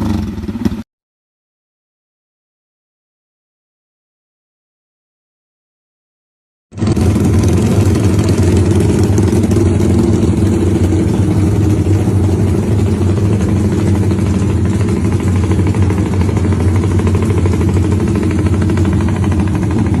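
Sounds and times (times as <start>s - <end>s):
motorcycle engine idling: 0.0s - 0.8s, 6.8s - 20.0s.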